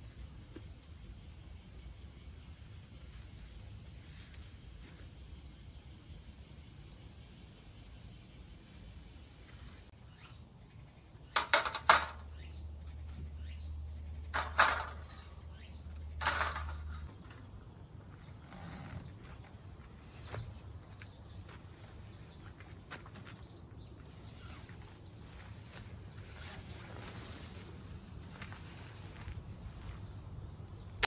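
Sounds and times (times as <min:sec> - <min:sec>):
insects droning: 0:00.0 - 0:31.0
sharp knocks and clatters: 0:11.4 - 0:17.1.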